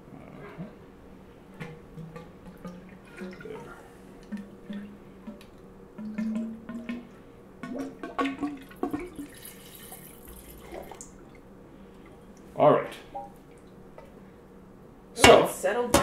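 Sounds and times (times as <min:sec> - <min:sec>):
wine gurgling from a decanter: 0:01.6 - 0:12.4.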